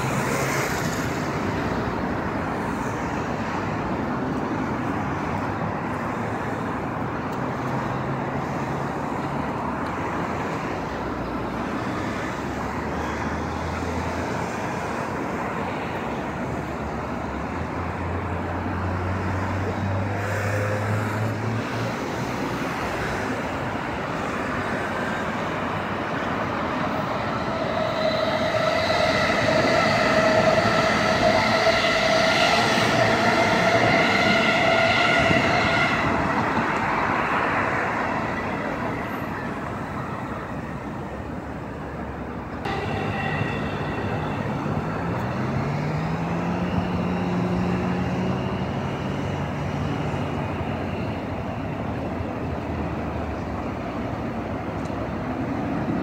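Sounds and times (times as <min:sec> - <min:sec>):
electric train passing: 0:00.0 - 0:56.0
steady high-pitched whine: 0:42.7 - 0:45.7.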